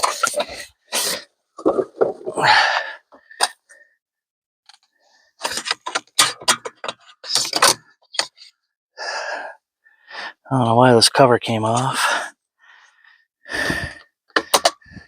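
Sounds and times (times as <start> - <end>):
plastic cover clicks and rattles: 5.4 - 8.3, 14.4 - 14.8.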